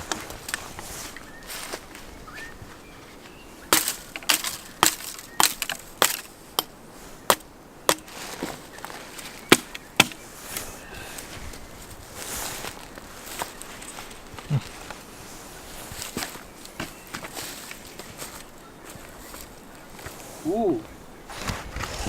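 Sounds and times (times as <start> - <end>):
axe chopping wood: 3.7 - 6.7, 7.3 - 8.1, 9.5 - 10.2.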